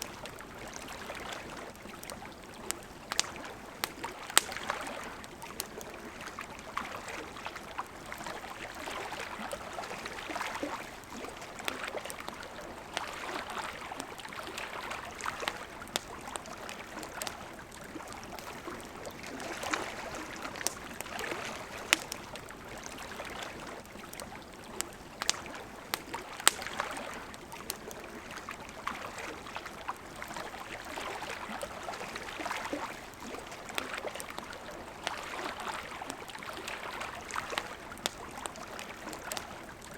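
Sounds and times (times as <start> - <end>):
wood fire crackling and popping: 0.0 - 7.0, 7.6 - 29.0, 37.1 - 39.9.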